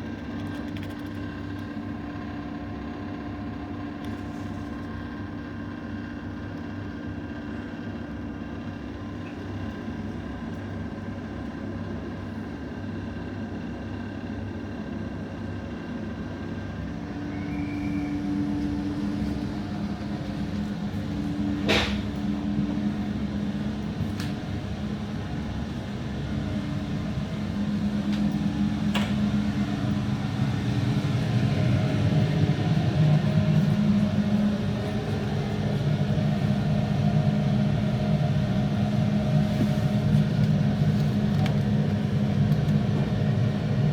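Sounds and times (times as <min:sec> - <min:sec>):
train rumble on rails: 0:00.0 - 0:43.9
motor hum: 0:16.9 - 0:43.9.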